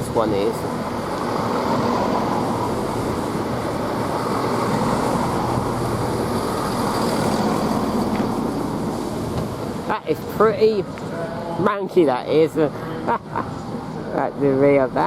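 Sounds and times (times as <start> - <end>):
wheels on rails: 0.0 - 9.8
diesel train engines: 0.0 - 15.0.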